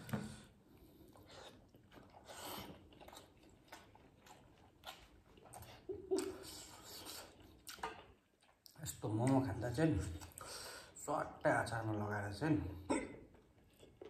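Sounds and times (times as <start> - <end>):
wet chewing smacks: 0.8 - 10.5.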